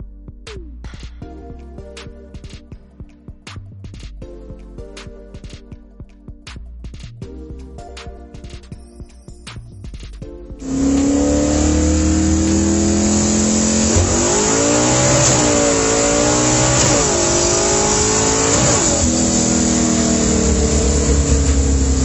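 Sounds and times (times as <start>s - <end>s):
car engine revving: 10.6s - 22.0s.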